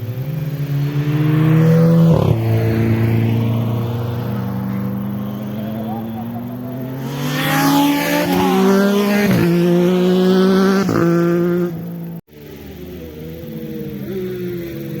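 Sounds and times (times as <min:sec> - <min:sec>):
motorcycle engine at full throttle: 0:00.0 - 0:15.0
quieter engine running: 0:00.0 - 0:15.0.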